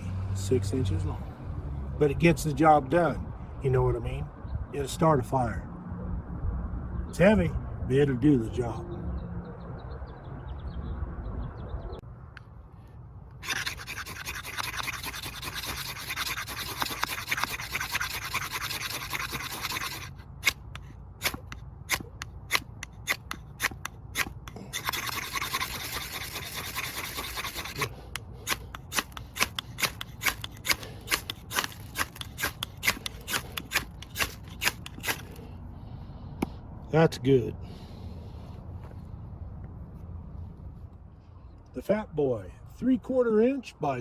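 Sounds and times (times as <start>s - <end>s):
rod rasping scrape: 13.4s - 35.5s.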